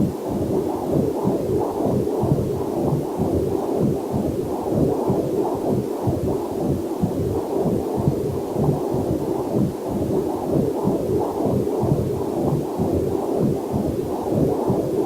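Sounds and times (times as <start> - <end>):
fetal heartbeat whooshing pulses: 0.0 - 15.0.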